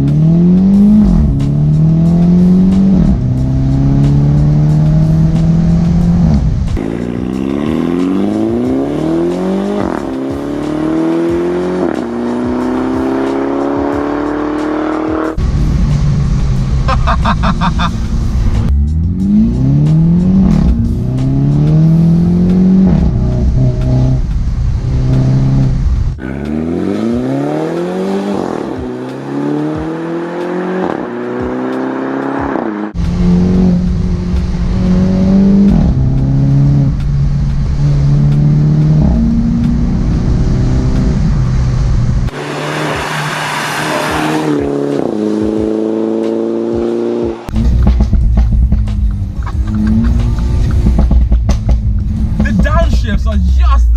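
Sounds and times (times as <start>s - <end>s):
car engine accelerating hard: 0.0s - 53.9s.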